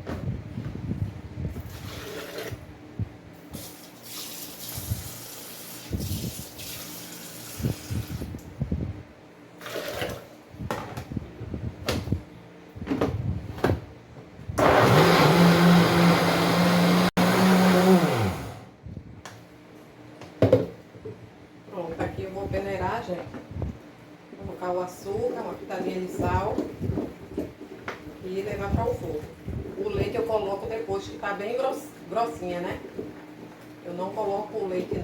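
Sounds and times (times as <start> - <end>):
electric blender running: 14.6 - 18.7.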